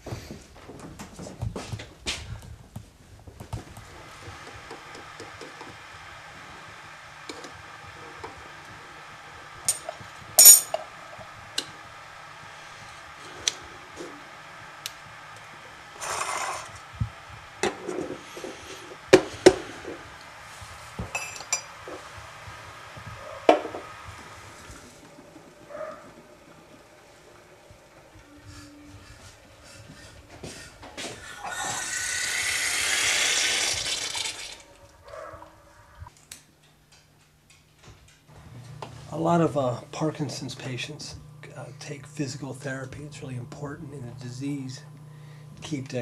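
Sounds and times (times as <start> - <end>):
cups and dishes clinking: 9.7 - 10.8, 21.0 - 21.7.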